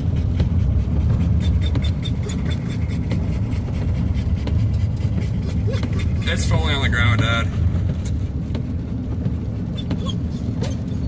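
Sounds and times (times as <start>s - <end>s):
road and engine rumble: 0.0s - 11.0s
rain ticking on car roof: 2.5s - 11.0s.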